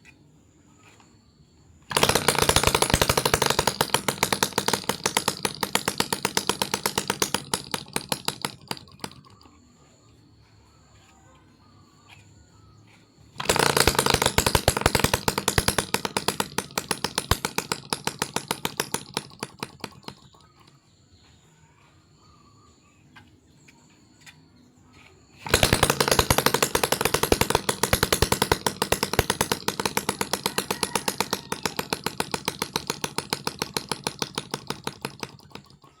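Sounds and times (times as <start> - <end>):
small two-stroke engine running: 1.9 - 9.6, 13.4 - 20.7, 25.4 - 36.0.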